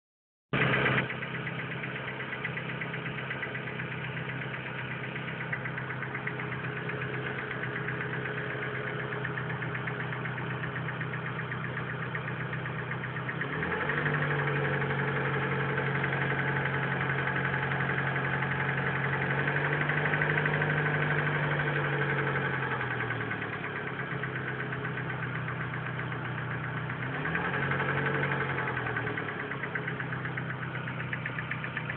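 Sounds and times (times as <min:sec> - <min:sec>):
car engine idling and revving: 0:00.5 - 0:31.9.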